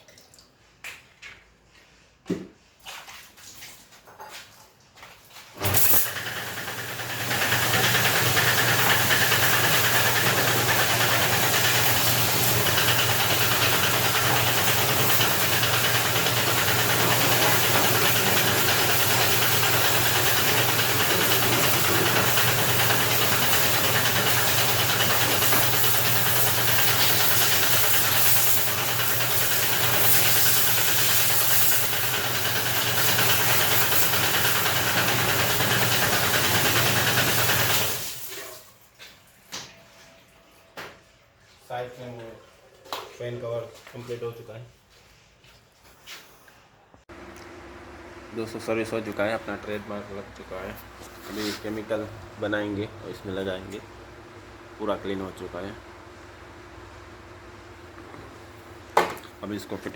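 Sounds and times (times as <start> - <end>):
machine motor hissing: 5.6 - 38.2.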